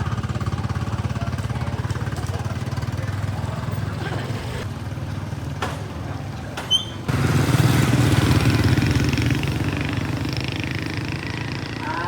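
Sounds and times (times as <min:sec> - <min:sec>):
motorbike engine running: 0:00.0 - 0:05.3, 0:07.1 - 0:12.0
brief high squeak: 0:06.7 - 0:07.0.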